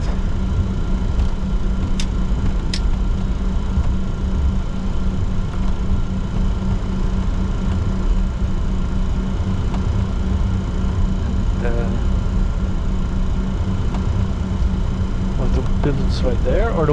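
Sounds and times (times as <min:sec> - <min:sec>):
cockpit rumble and hum: 0:00.0 - 0:16.9
faint steady whine: 0:00.0 - 0:16.9.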